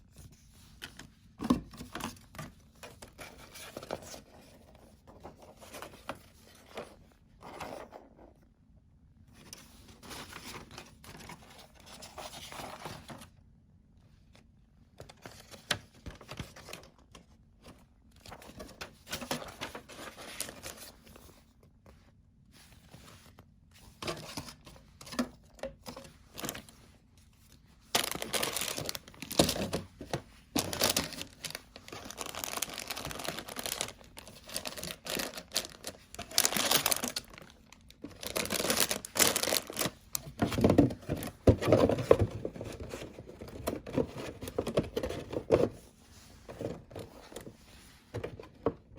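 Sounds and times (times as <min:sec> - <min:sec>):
plastic packaging rustling and tearing: 0:18.4 - 0:20.9, 0:27.9 - 0:45.7.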